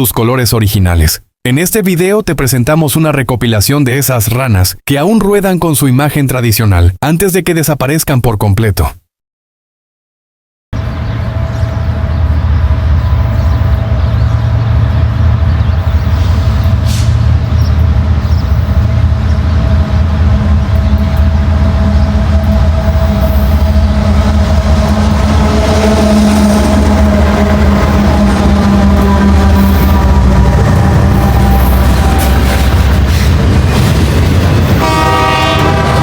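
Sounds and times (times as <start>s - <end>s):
diesel locomotive engine drone: 10.8s - 36.0s.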